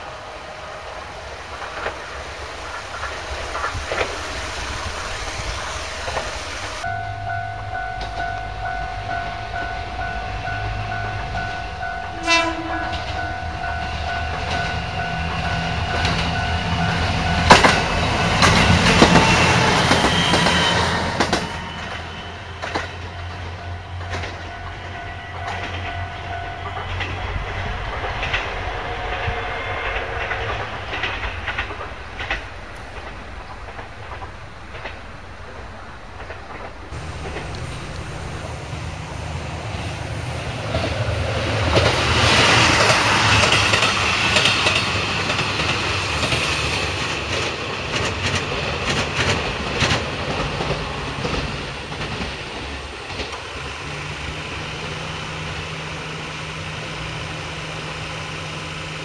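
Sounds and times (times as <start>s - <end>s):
train wheels clattering: 0.0s - 59.0s
steady ringing tone: 6.8s - 31.6s.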